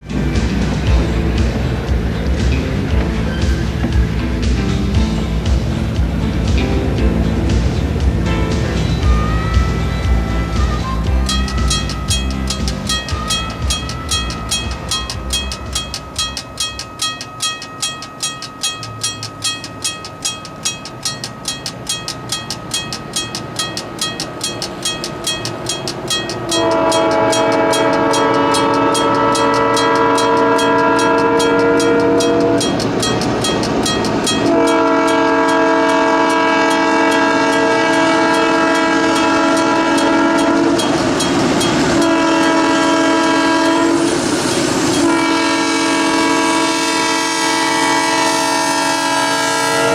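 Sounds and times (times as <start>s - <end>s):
diesel locomotive approaching: 0.0s - 49.9s
crossing signal bell ringing: 8.6s - 49.9s
locomotive air horn blasts: 9.0s - 12.2s, 26.4s - 32.8s, 34.3s - 41.0s, 41.8s - 44.3s, 44.9s - 49.9s.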